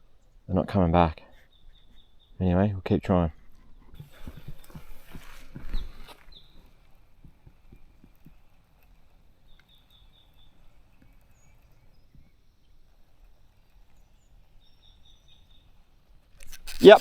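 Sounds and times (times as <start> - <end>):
birds chirping: 1.3 - 2.6.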